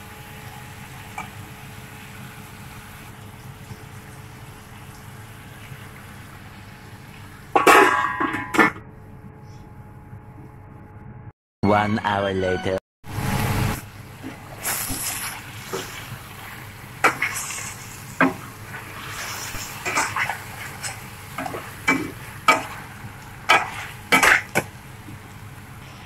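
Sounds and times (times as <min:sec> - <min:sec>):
pot cooking hiss: 0:13.1 - 0:26.0.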